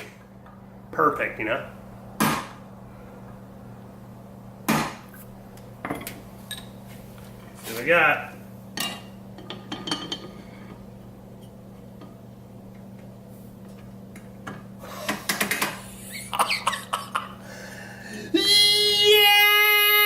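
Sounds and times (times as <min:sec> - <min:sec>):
steady low hum: 0:00.0 - 0:20.0
man shouting: 0:18.3 - 0:20.0.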